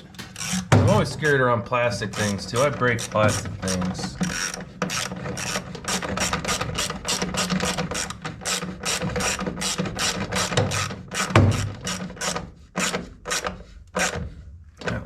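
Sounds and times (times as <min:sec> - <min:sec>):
hand ratchet clicking: 0:00.0 - 0:01.1, 0:02.0 - 0:14.2.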